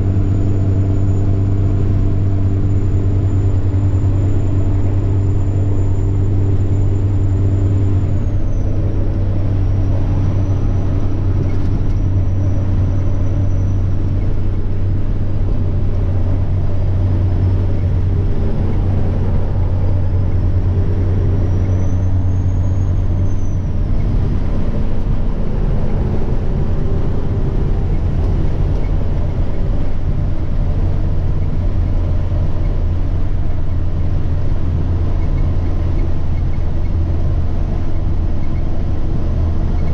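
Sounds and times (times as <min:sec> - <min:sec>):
diesel truck engine drone: 0:00.0 - 0:39.9
turbocharger whine: 0:00.0 - 0:39.9.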